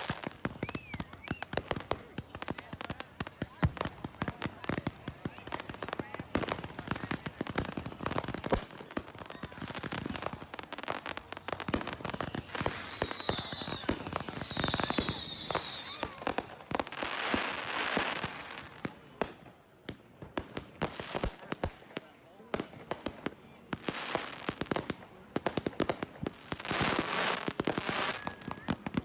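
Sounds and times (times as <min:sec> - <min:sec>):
falling firework whistles: 0:00.0 - 0:01.6, 0:12.0 - 0:16.2, 0:27.8 - 0:28.7
fireworks crackling pops: 0:00.0 - 0:29.0.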